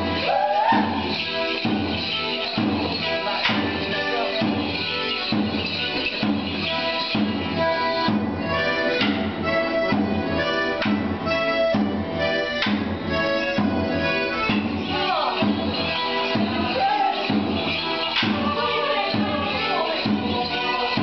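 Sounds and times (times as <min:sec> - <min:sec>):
folk dance tune on accordion: 0:00.0 - 0:21.0.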